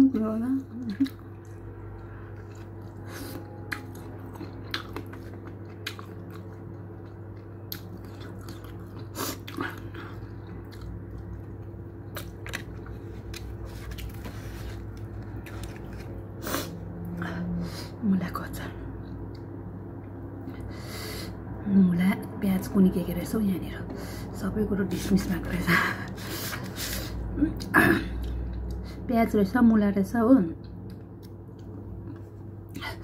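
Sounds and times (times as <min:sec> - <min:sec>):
steady low hum: 0:00.0 - 0:33.0
person chewing food: 0:00.8 - 0:16.8, 0:30.7 - 0:32.8.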